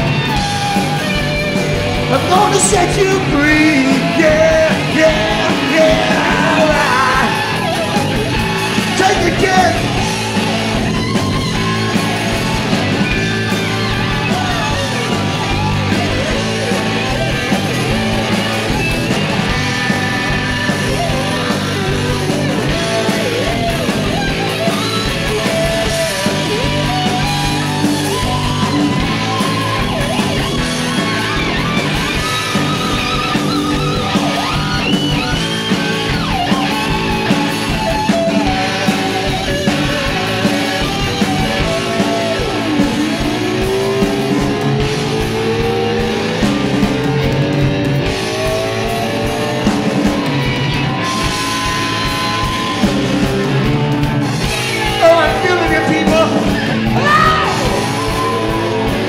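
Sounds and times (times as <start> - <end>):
electric guitar bending notes: 0.0 - 59.0
live rock band playing: 0.0 - 59.0.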